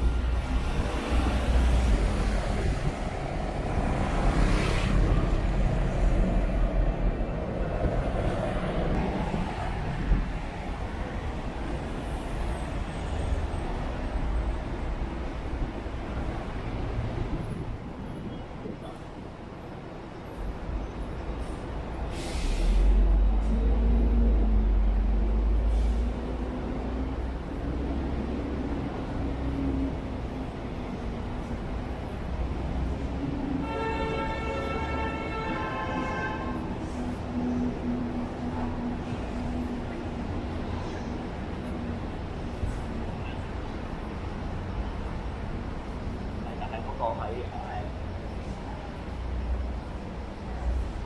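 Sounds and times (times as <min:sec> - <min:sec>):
deep low city rumble: 0:00.0 - 0:51.0
traffic hiss: 0:20.6 - 0:51.0
short hiss: 0:22.1 - 0:23.0.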